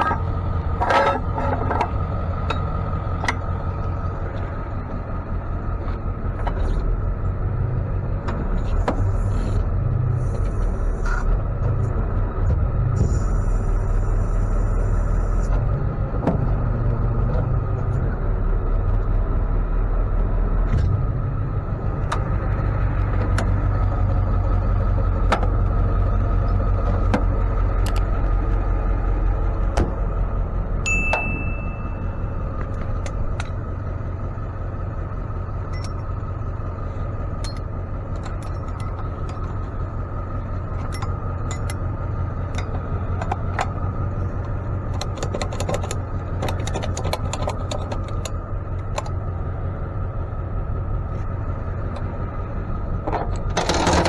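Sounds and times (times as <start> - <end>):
rattles and clicks: 0.0 - 5.1, 21.9 - 28.7, 31.1 - 33.6, 35.6 - 49.2, 53.0 - 54.0
truck engine rumbling: 0.0 - 54.0
short high chime: 30.9 - 32.3.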